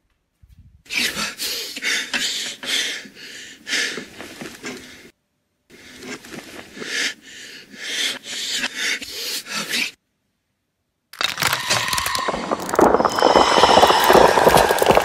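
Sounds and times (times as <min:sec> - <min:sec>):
heavy raspy breathing: 0:00.9 - 0:05.1, 0:05.7 - 0:10.0.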